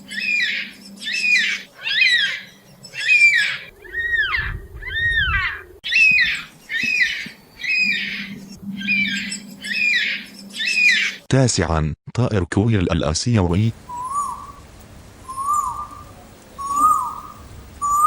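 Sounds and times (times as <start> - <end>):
cockatoo squawking: 0.1 - 11.2, 16.6 - 18.0
cockatoo wailing: 0.1 - 11.2.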